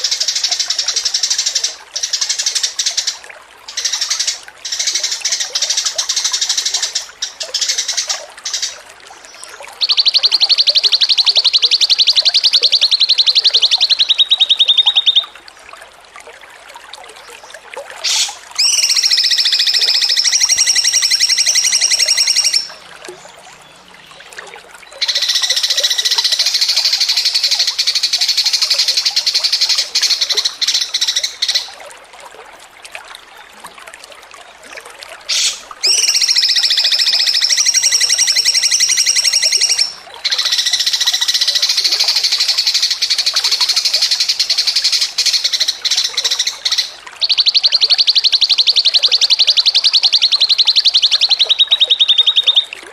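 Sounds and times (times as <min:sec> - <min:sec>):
songbird singing high trills: 0:09.3 - 0:15.4, 0:18.0 - 0:22.8, 0:35.3 - 0:52.8.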